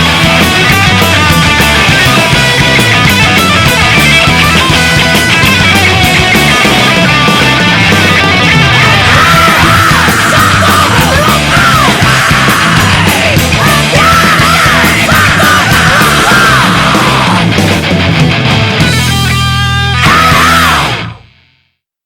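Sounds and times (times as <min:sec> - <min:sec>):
heavy rock music: 0:00.0 - 0:21.7
person yelling vocals: 0:08.7 - 0:17.5, 0:19.7 - 0:21.1.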